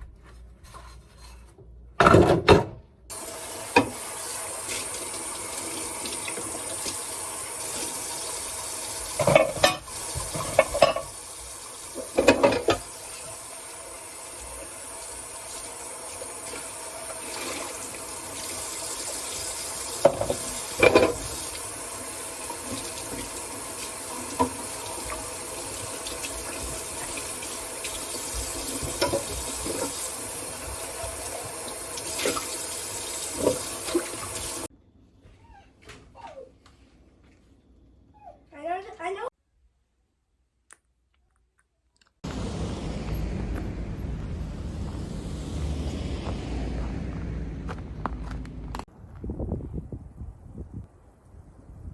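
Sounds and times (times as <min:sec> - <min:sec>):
tap running into sink: 0:03.1 - 0:04.1, 0:09.0 - 0:11.2, 0:11.9 - 0:13.4, 0:19.1 - 0:21.7, 0:22.5 - 0:34.6
dishes clinking: 0:09.2 - 0:11.2, 0:12.0 - 0:12.9.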